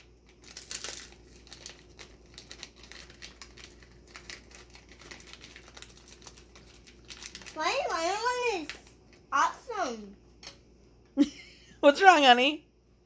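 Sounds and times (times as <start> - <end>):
snack wrapper crinkling: 0.0 - 9.3.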